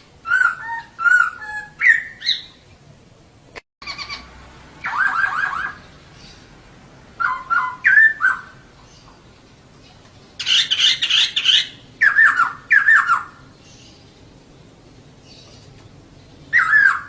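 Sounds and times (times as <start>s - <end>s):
bird harsh chattering: 3.8s - 5.9s, 7.2s - 9.2s, 10.4s - 13.4s, 16.5s - 17.0s.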